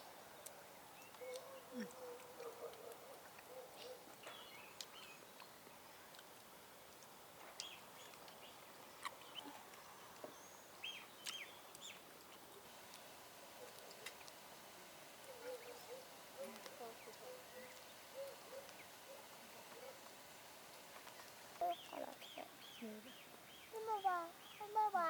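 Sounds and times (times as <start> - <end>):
bird chirps: 1.0 - 2.0, 10.3 - 12.0, 15.3 - 20.0, 21.6 - 24.8.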